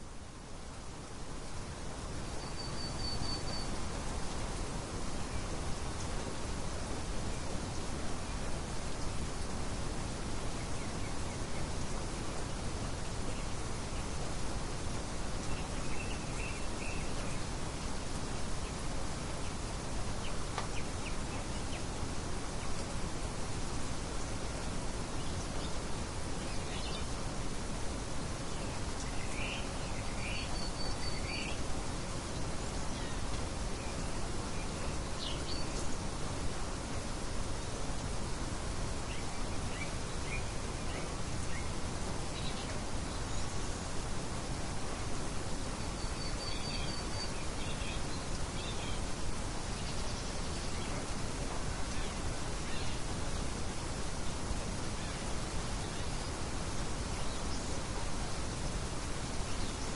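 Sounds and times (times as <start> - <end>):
steady background hiss: 0.0 - 59.9
thin bird whistle: 2.4 - 3.7
birds chirping: 28.3 - 36.2, 45.5 - 53.6.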